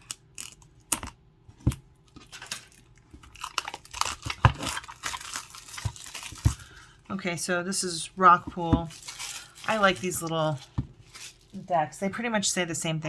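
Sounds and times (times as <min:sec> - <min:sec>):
packaging crinkling and tearing: 0:02.1 - 0:07.0, 0:08.9 - 0:11.7.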